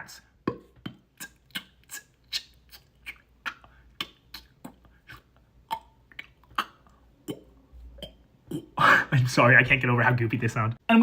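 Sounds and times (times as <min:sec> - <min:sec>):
mouth pops and clicks: 0:00.4 - 0:08.8.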